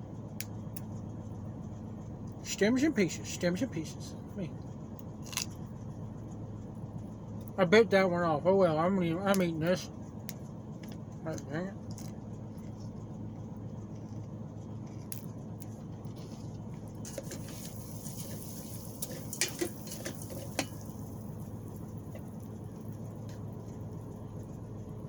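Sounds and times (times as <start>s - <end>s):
steady low hum: 0.0s - 25.0s
food sizzling in butter: 17.1s - 22.8s.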